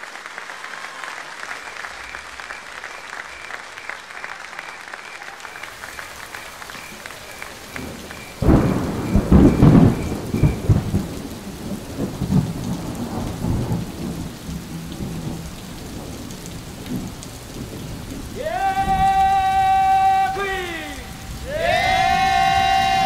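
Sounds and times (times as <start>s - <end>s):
rain hissing: 0.0s - 23.0s
thunder rumbling: 5.8s - 23.0s.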